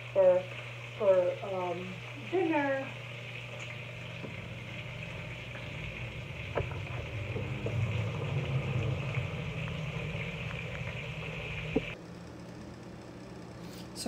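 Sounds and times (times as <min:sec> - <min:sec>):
chicken sizzling in hot oil: 0:00.0 - 0:12.0
low rumble: 0:03.8 - 0:12.0.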